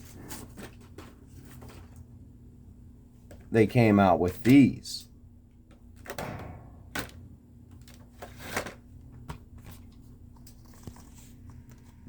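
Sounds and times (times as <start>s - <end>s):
faint steady hum: 0.0s - 12.0s
packaging clicks and rustles: 7.0s - 12.0s.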